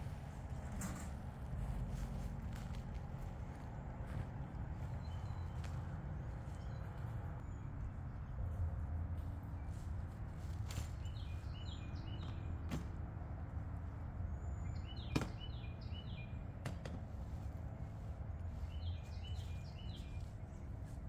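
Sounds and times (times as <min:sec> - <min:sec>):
songbird singing: 0:14.3 - 0:16.4, 0:18.6 - 0:20.8.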